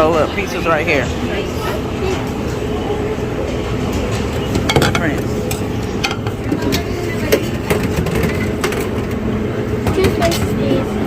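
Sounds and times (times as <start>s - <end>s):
murmur of many voices: 0.0s - 11.0s
dishes and utensils clinking: 3.9s - 9.1s.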